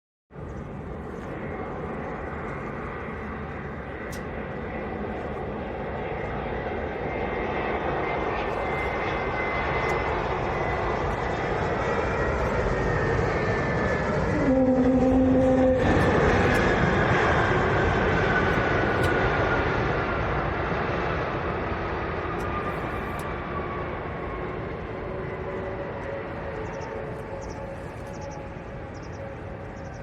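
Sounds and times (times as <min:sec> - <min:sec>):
jet engines roaring and whining: 0:00.4 - 0:30.0
short horn-like tone: 0:14.3 - 0:16.5.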